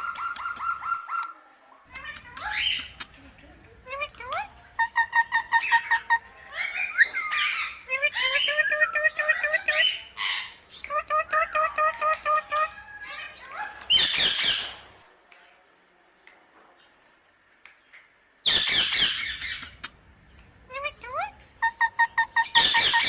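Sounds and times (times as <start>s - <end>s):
parrot chirping: 0.0s - 3.2s, 3.8s - 15.0s, 18.4s - 20.0s, 20.7s - 23.0s
parrot squawking harshly: 20.8s - 23.0s.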